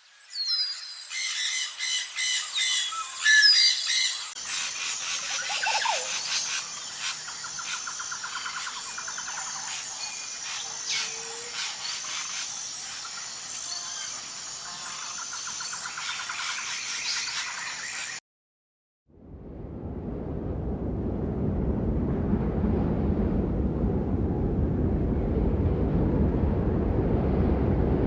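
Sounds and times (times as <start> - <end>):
birds chirping and trilling: 0.2 - 18.2.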